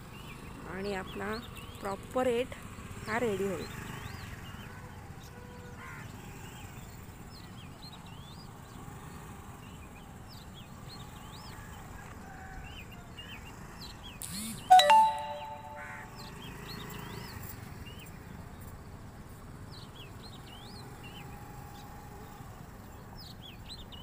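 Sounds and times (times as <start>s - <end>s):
small birds chirping: 0.0s - 4.7s.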